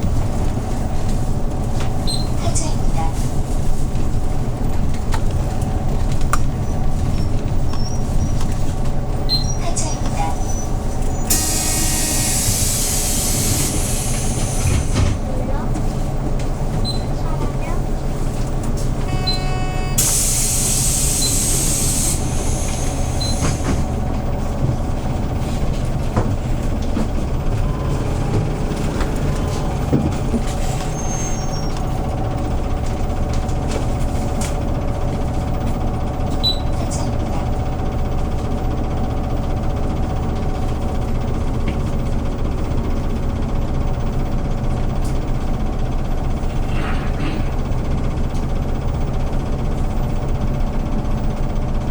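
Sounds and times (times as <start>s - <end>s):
bus engine humming: 0.0s - 51.9s
compressed air hiss: 11.3s - 15.0s, 20.0s - 23.8s.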